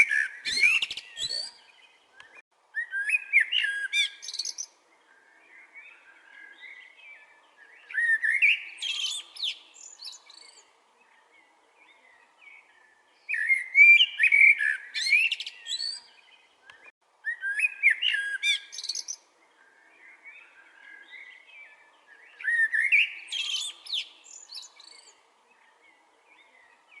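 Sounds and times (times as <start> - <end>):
blackbird singing whistles: 0.0 - 4.7, 7.8 - 10.6, 13.3 - 16.1, 17.2 - 19.2, 22.2 - 25.1.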